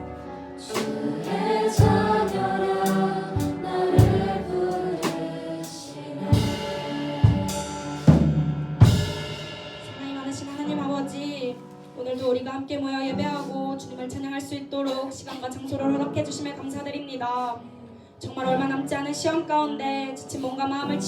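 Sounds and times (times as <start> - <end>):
voices singing together: 0.0 - 8.3
cymbal crashes: 0.0 - 10.9
piano: 0.0 - 21.0
bass drum hits: 1.8 - 5.3, 6.4 - 10.1.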